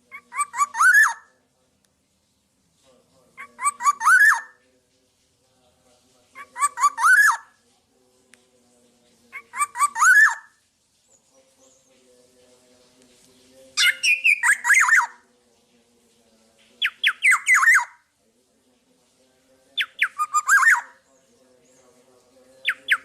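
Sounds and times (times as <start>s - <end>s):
bird whistling song: 0.2s - 1.3s, 3.6s - 4.6s, 6.5s - 7.5s, 9.4s - 10.5s, 13.8s - 15.2s, 16.8s - 18.0s, 19.8s - 21.0s, 22.6s - 23.0s.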